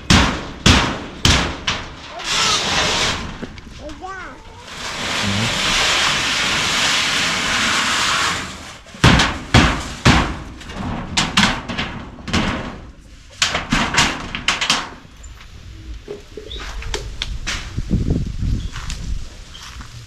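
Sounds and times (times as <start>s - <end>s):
sharp knocks and bangs: 0.0s - 3.6s, 8.9s - 15.1s
steady hiss: 4.6s - 8.8s.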